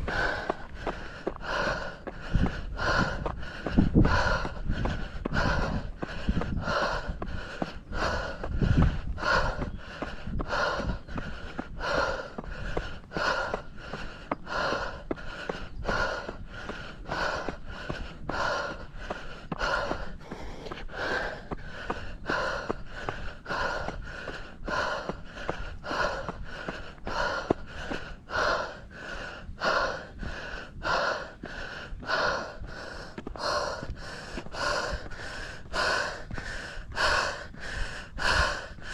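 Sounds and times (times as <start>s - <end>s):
person breathing heavily: 0.0s - 38.9s.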